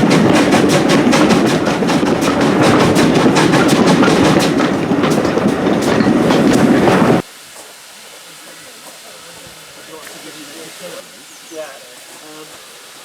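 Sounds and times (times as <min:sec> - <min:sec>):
train wheels clicking over rails: 0:00.0 - 0:07.7.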